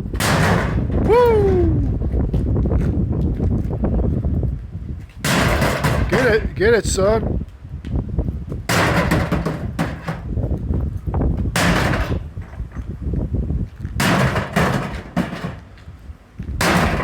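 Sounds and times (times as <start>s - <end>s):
knocks and rattles: 0.0s - 2.4s, 5.0s - 6.4s, 8.6s - 13.0s, 13.8s - 15.9s, 16.6s - 17.0s
wind rumble on microphone: 0.0s - 17.0s
microwave oven being smashed: 0.1s - 1.1s, 5.2s - 6.3s, 8.7s - 10.3s, 11.5s - 12.4s, 14.0s - 15.7s, 16.6s - 17.0s.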